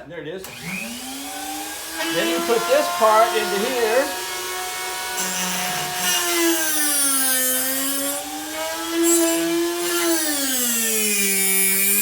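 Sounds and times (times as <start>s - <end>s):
drill bit grinding hiss: 0.4s - 12.0s
sharpener motor whining: 0.4s - 12.0s.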